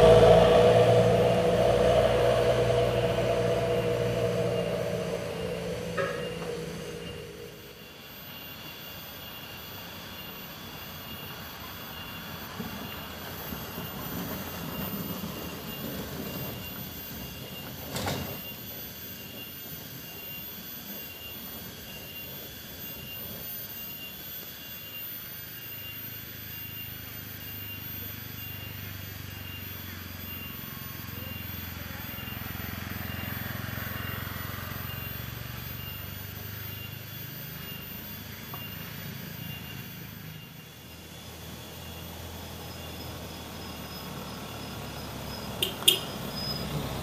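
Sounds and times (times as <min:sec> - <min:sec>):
truck engine passing: 0:00.0 - 0:07.8, 0:41.2 - 0:47.0
steady high hiss: 0:00.0 - 0:16.3.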